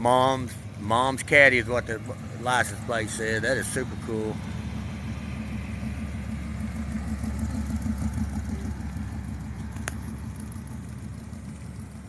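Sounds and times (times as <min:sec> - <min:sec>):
car engine rumbling past: 0:00.0 - 0:12.0.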